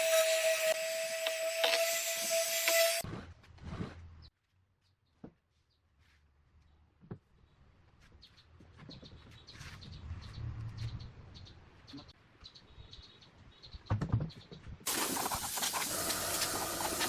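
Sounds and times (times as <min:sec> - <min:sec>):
small birds chirping: 0:07.4 - 0:17.0.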